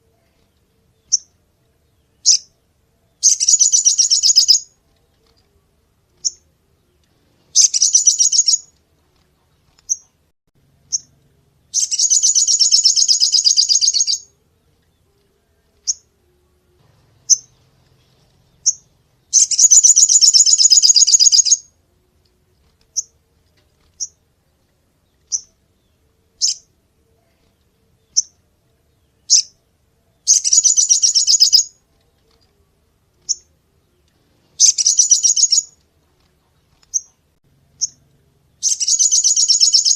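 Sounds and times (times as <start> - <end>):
bird chirping and rattling: 3.2 - 4.7, 7.5 - 8.7, 11.7 - 15.0, 17.2 - 21.7, 30.3 - 32.4, 34.6 - 35.8, 38.6 - 39.9.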